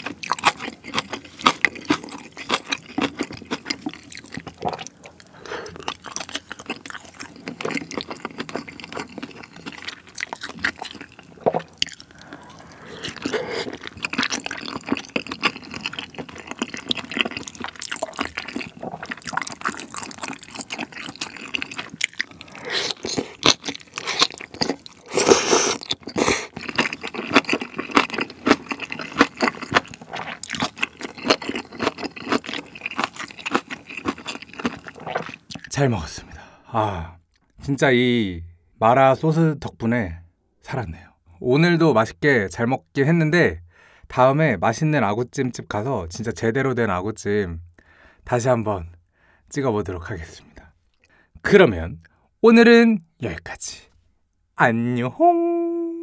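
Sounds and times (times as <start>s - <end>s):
wet chewing and crunching: 0.0s - 35.8s.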